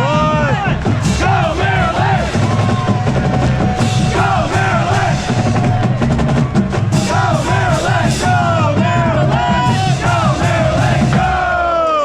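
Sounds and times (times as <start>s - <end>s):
drumline drum cadence: 0.0s - 12.0s
voices shouting and chanting: 0.0s - 12.0s.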